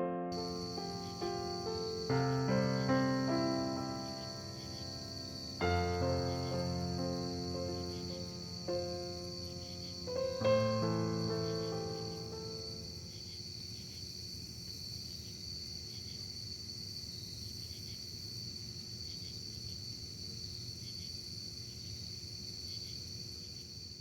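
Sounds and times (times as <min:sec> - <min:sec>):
crickets trilling: 0:00.3 - 0:24.0
faint chirps: 0:00.4 - 0:13.4.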